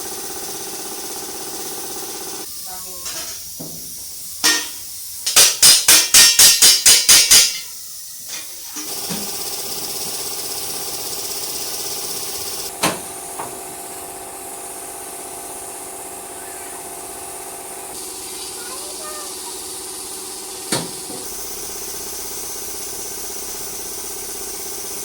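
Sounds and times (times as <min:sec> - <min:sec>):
steady machine hum: 0:08.8 - 0:25.0.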